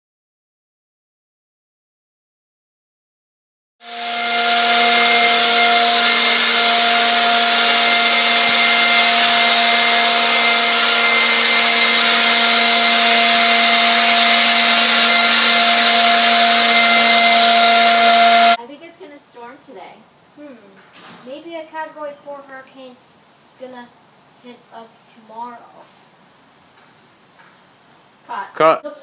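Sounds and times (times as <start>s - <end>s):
electric motor whining hum: 3.8s - 18.6s.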